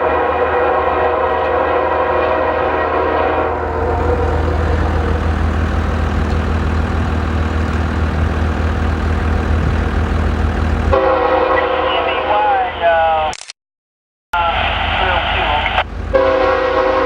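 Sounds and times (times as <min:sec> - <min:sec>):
train air horn chord: 0:00.0 - 0:05.8, 0:10.9 - 0:12.3, 0:16.1 - 0:17.0
locomotive engine and rail rumble: 0:00.0 - 0:13.4, 0:14.4 - 0:17.0.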